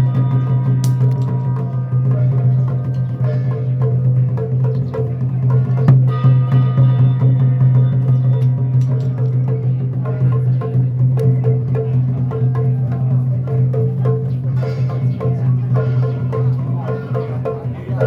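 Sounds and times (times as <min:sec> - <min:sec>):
woodblock-like knocks: 0:00.8 - 0:01.8, 0:08.0 - 0:18.0.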